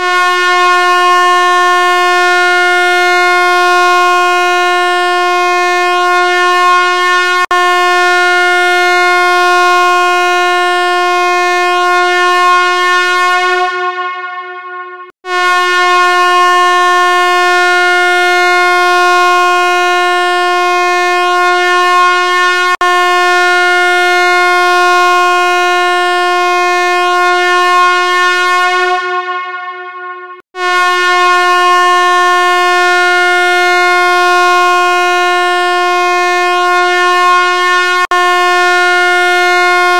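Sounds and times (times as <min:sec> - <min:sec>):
steady buzzing tone: 0:07.5 - 0:18.3, 0:25.0 - 0:33.7.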